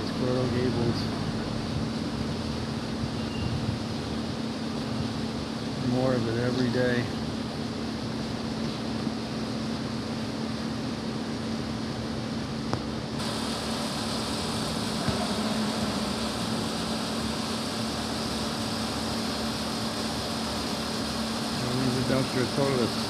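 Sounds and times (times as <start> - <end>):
steady mechanical hum: 0.0 - 23.0
bright hiss: 13.2 - 23.0.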